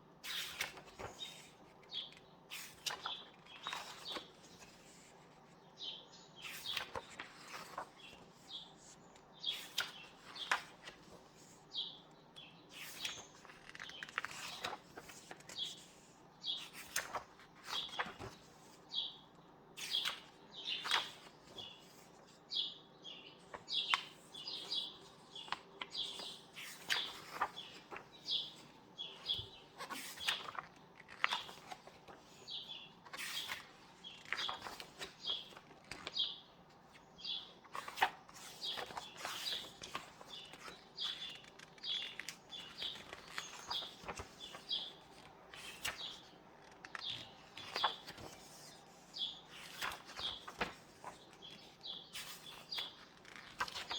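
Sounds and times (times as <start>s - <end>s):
book pages turning: 0.2s - 5.6s, 6.4s - 11.7s, 12.3s - 18.8s, 19.8s - 22.3s, 23.5s - 53.9s
small birds chirping: 17.7s - 53.9s.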